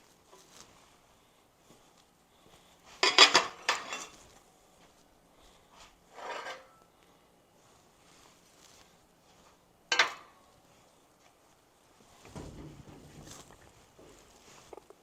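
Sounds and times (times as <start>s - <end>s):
metal scraping: 6.1s - 6.8s
dull knock: 12.3s - 13.8s.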